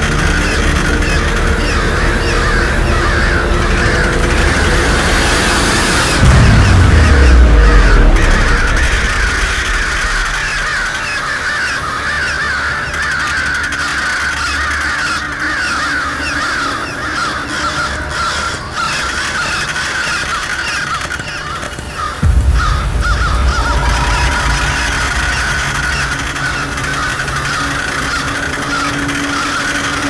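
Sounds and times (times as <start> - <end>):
low rumble: 0.0 - 11.8, 22.2 - 30.0
flock of birds calling: 0.0 - 30.0.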